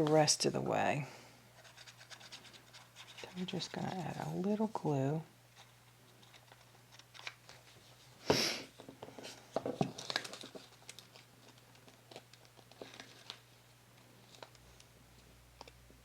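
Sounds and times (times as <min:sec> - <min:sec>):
paper and card rustling: 0:01.6 - 0:04.6, 0:05.5 - 0:08.1, 0:08.8 - 0:15.8.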